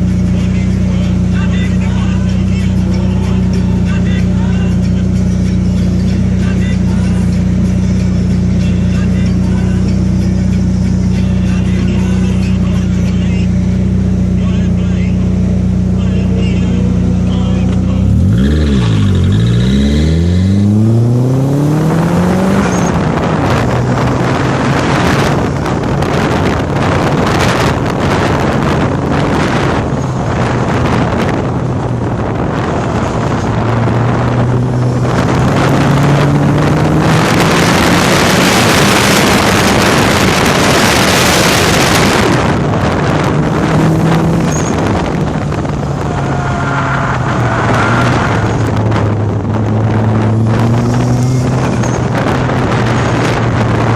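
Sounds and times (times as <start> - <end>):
car engine accelerating: 0.0 - 53.9
wind noise on microphone: 17.2 - 53.9.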